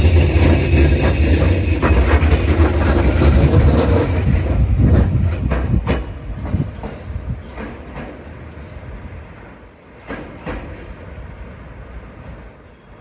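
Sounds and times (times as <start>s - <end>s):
wheels clacking over rail joints: 0.0s - 8.4s, 9.9s - 11.4s
electric train rumbling past: 0.0s - 13.0s.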